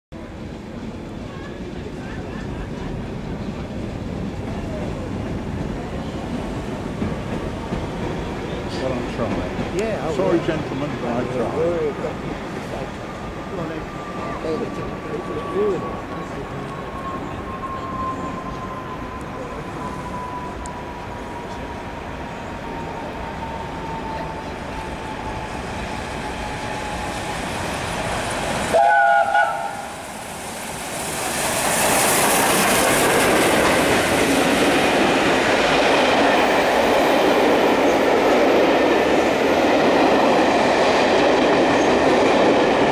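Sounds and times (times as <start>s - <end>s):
steam locomotive whistle: 28.4s - 30.2s.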